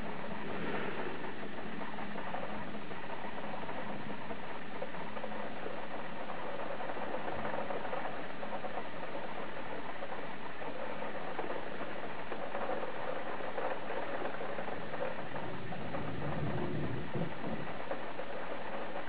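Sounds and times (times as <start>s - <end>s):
heavy rain pattering: 0.0s - 19.0s
low thunder rumble: 14.8s - 18.5s.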